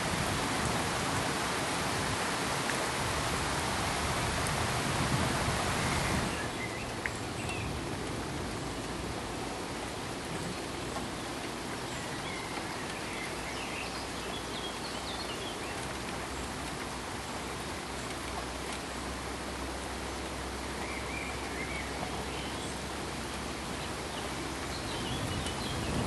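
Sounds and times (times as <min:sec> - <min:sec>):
steady pink noise hiss: 0:00.0 - 0:26.0.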